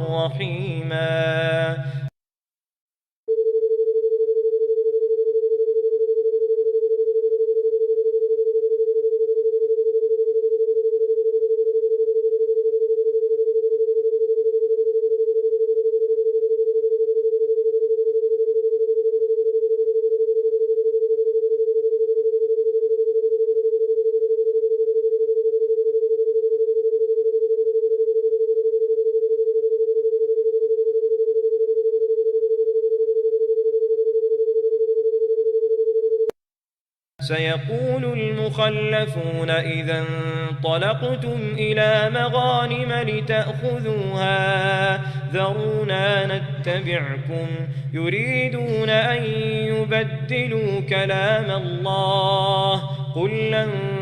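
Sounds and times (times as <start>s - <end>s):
steady electronic pure tone: 0.0s - 2.1s, 37.2s - 54.0s.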